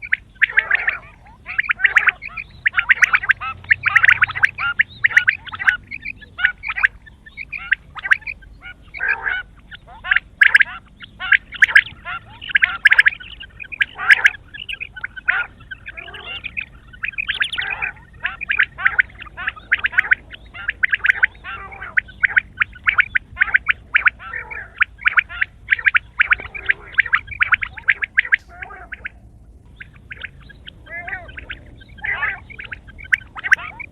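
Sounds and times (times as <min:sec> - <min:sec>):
quail calling: 0:00.0 - 0:33.9.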